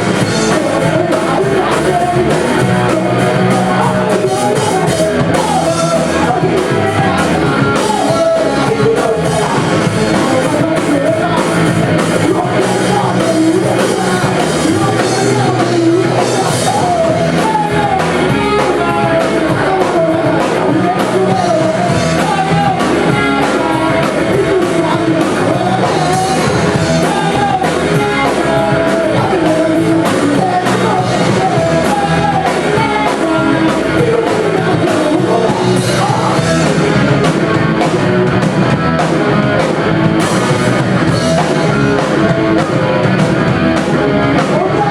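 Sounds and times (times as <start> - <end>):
person singing: 0.0 - 44.9
rock band playing live: 0.0 - 44.9.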